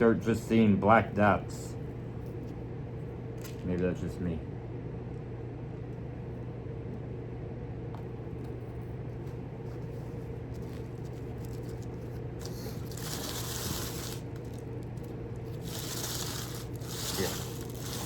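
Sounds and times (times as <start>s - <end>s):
low electrical hum: 0.0s - 18.0s
rustling scrape: 9.7s - 14.7s, 15.5s - 18.0s.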